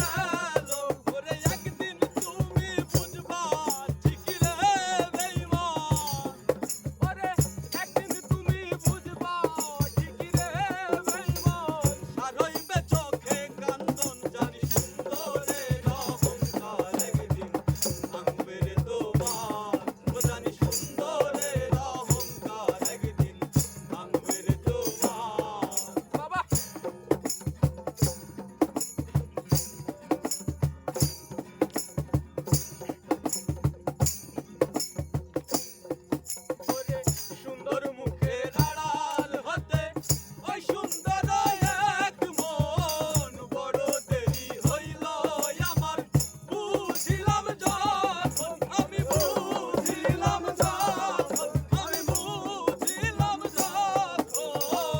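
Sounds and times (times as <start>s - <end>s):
shaker jingles: 0.0s - 18.4s, 19.1s - 37.7s, 38.5s - 54.9s
hand drum beat: 0.0s - 54.9s.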